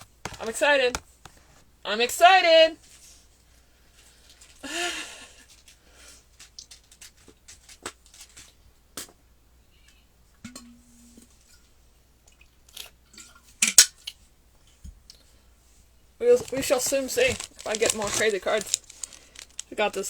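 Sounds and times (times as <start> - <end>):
cards being handled: 0.0 - 1.6, 16.2 - 20.0
foil wrapper crinkling and tearing: 16.2 - 20.0.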